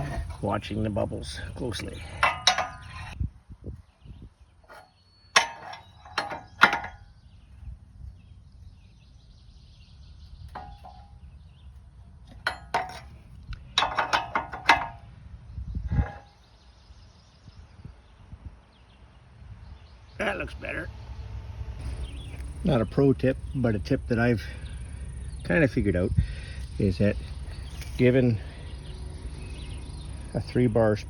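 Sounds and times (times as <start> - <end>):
faint outdoor background: 0.0 - 31.0
wrench clinking on metal bolts: 2.0 - 3.2, 4.7 - 7.1, 10.5 - 11.2, 12.3 - 15.0, 16.0 - 16.3.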